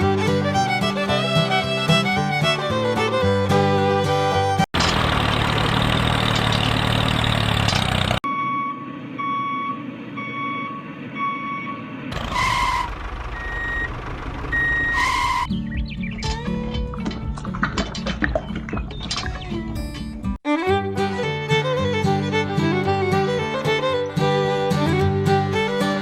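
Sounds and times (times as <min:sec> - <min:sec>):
heavy truck engine running: 0:00.0 - 0:18.0
truck reversing alarm beeps: 0:08.2 - 0:15.5.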